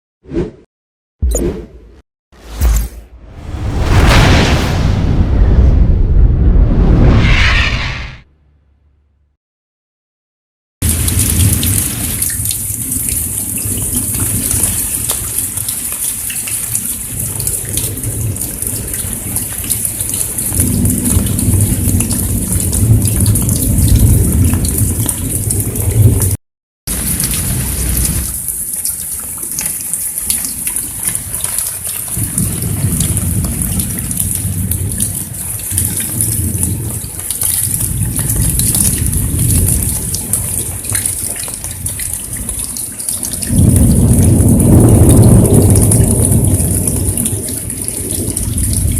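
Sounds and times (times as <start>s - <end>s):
heavy rain pouring: 10.8s - 48.9s.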